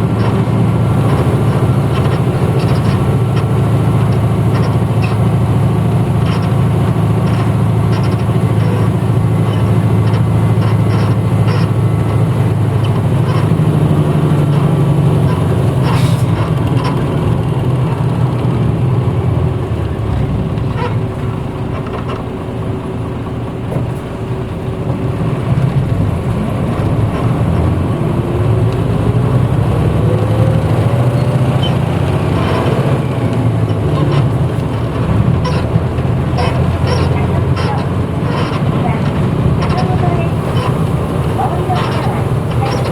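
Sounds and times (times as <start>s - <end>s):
bus diesel engine drone: 0.0s - 42.9s
interior rattles and clicks: 0.0s - 42.9s
rising engine whine: 25.4s - 42.9s.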